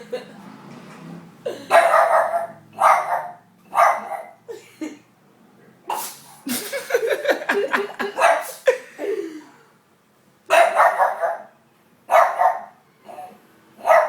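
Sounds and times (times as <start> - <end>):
dog barking harshly: 1.7 - 4.4, 8.1 - 8.6, 10.5 - 11.5, 12.1 - 14.0
dog reverse sneezing: 5.9 - 6.9, 8.2 - 8.7.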